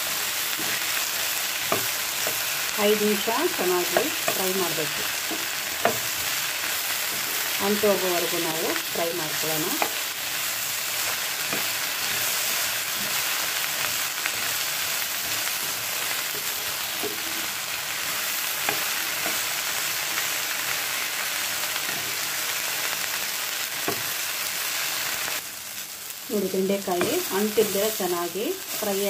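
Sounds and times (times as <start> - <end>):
okra sizzling in oil: 0.0 - 29.0
spatula scraping and knocking pan: 0.5 - 10.0, 15.2 - 19.6.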